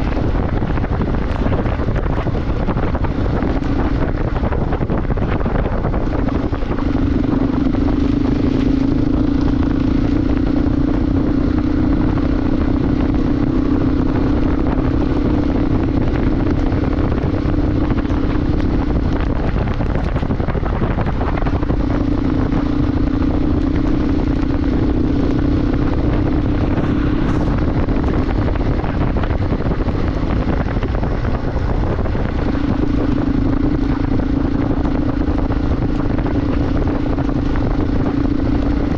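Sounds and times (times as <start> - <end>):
motorcycle engine running: 0.0 - 38.9
wind rush on microphone: 0.0 - 38.9.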